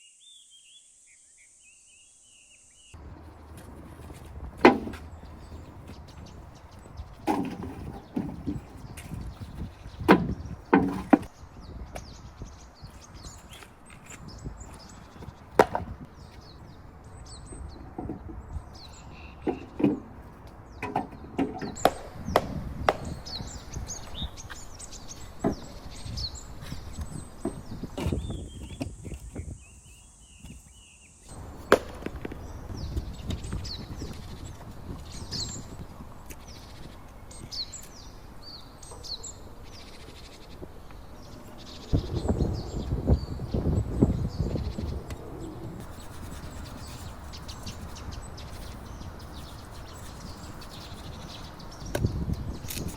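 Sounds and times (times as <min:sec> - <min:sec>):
birds chirping: 0:00.0 - 0:52.9
loud irregular knocks: 0:03.0 - 0:06.0, 0:10.0 - 0:11.3, 0:15.6 - 0:16.1
low wind rumble: 0:03.0 - 0:30.7, 0:31.3 - 0:52.9
chopping wood: 0:03.6 - 0:05.1, 0:07.2 - 0:08.6, 0:10.0 - 0:11.3, 0:15.6 - 0:16.0, 0:20.8 - 0:23.4, 0:31.6 - 0:32.4.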